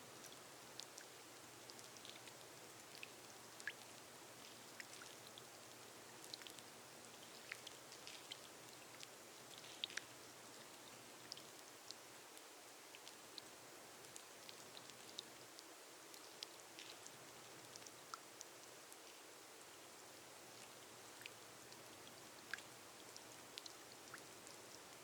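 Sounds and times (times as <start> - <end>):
rain hissing on a glass roof: 0.0 - 25.0.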